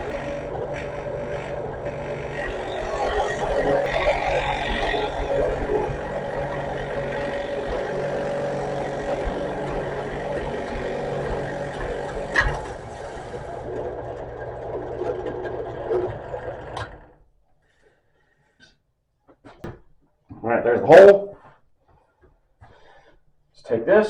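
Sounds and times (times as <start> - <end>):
drill boring through wood: 0.0 - 17.2.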